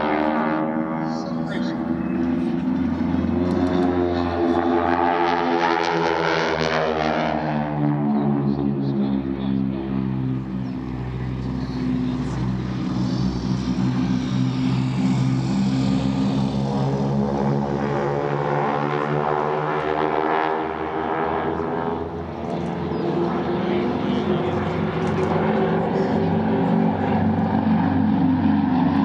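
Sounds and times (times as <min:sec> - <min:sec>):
propeller airplane droning overhead: 0:00.0 - 0:29.0.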